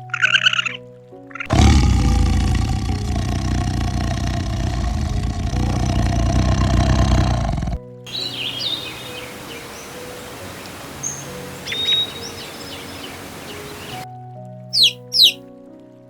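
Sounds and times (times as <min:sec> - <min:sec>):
small birds chirping: 0:01.4 - 0:14.0, 0:14.7 - 0:15.4
steady background hiss: 0:02.2 - 0:14.0
sharp squawk: 0:08.1 - 0:14.0, 0:14.8 - 0:15.4.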